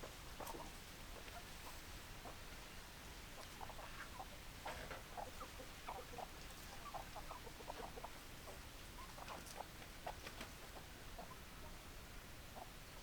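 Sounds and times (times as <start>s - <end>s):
chickens clucking: 0.0s - 2.5s, 3.3s - 11.9s.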